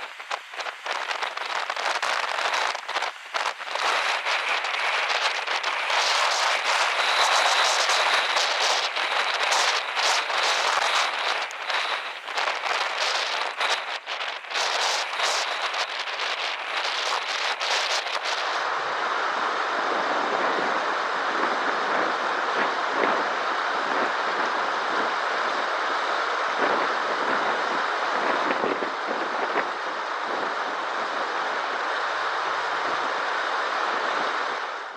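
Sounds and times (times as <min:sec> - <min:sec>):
crackling clicks: 0:00.0 - 0:18.6.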